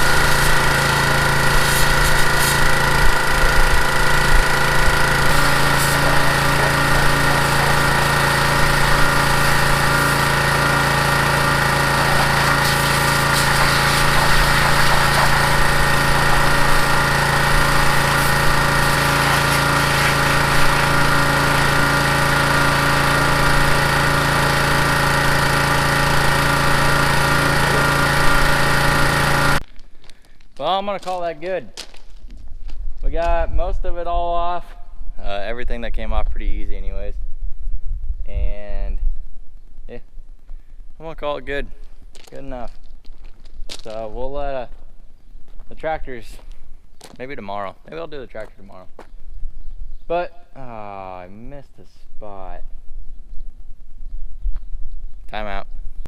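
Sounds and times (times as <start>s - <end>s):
pressure washer motor droning: 0.0s - 29.6s
water spray hissing: 0.0s - 29.6s.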